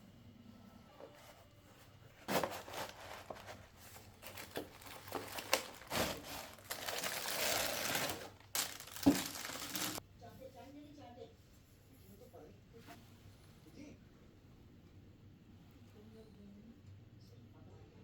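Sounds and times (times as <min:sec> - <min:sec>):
packaging crinkling and rustling: 0:02.2 - 0:10.0.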